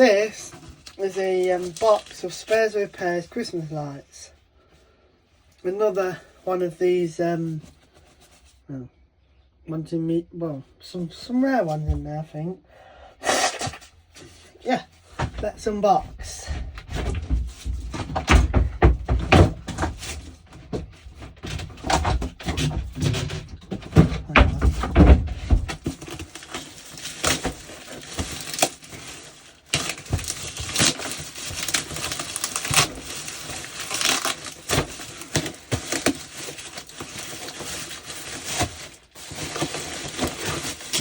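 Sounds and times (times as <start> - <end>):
plastic bag crinkling: 0.0 - 3.3, 25.4 - 41.0
parcel thuds and knocks: 15.2 - 26.3.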